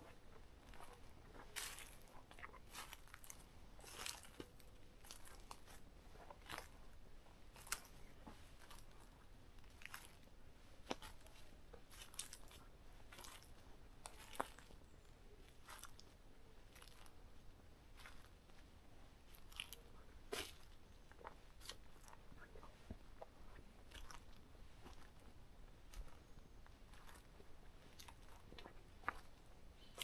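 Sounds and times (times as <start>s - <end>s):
footsteps crunching on leaves: 1.6s - 2.1s, 2.7s - 4.4s.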